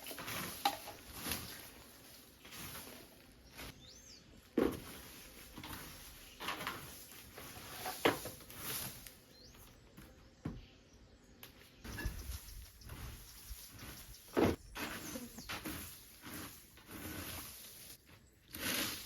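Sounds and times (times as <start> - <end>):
small bird chirping: 3.4 - 4.3, 9.2 - 16.0.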